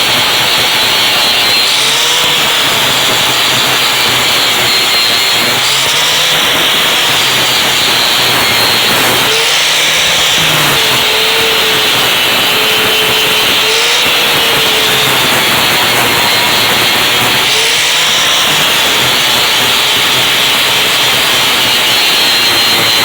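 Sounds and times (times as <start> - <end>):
angle grinder grinding: 0.0 - 23.0.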